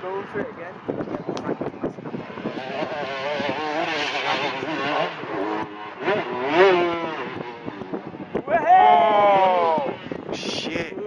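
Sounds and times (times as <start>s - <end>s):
dirt bike engine revving: 1.9s - 10.4s.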